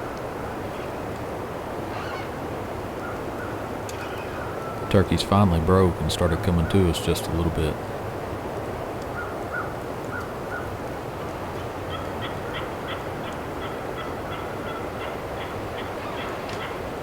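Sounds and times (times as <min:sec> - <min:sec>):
background hiss: 0:00.0 - 0:17.0
wild turkeys calling: 0:01.9 - 0:02.4, 0:03.0 - 0:07.8, 0:11.9 - 0:16.8.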